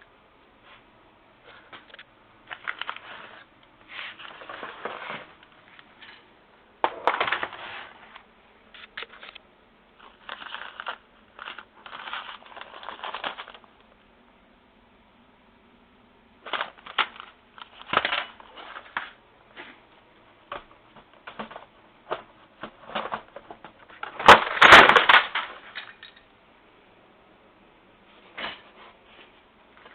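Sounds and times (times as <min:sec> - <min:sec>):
material rustling and crinkling: 0:00.6 - 0:09.4, 0:10.0 - 0:13.8, 0:16.4 - 0:26.1.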